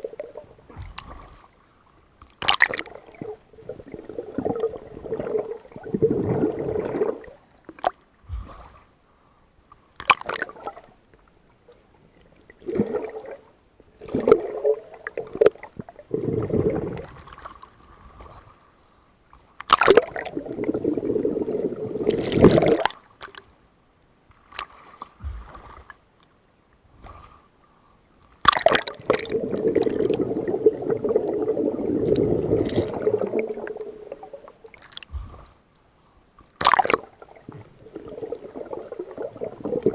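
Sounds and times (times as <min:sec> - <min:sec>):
water sloshing and gurgling: 0:00.0 - 0:23.6, 0:24.2 - 0:27.6, 0:28.3 - 0:39.9.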